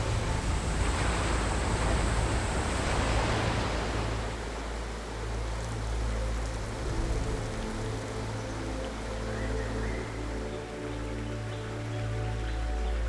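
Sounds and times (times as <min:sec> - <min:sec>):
low steady rumble: 0:00.0 - 0:05.0
heavy rain hissing: 0:00.0 - 0:07.8.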